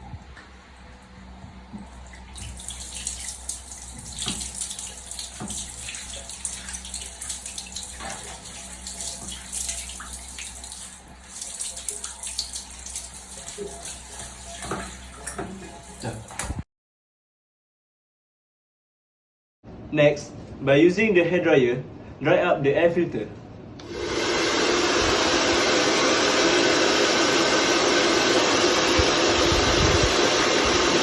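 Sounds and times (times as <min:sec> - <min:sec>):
tap water running and splashing: 0:00.0 - 0:16.6.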